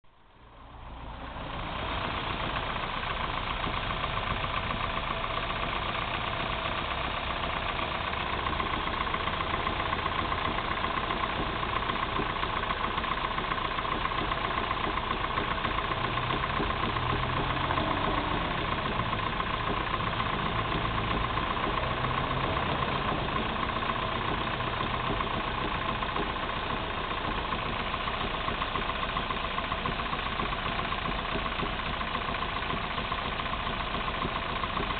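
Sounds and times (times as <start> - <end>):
car engine with rapid knock: 0.4 - 34.9.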